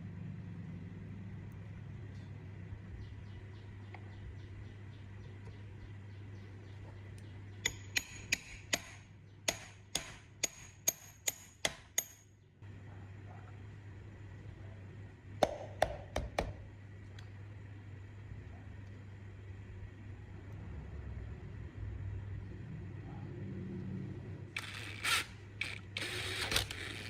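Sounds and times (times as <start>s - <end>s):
steady low hum: 0.0s - 27.0s
sharp metallic taps: 7.6s - 12.3s.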